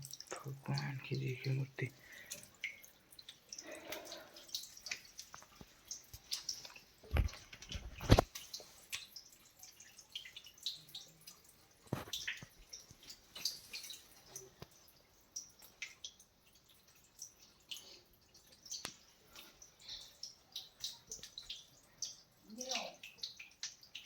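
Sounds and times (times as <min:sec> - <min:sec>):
water dripping: 0:00.0 - 0:24.0.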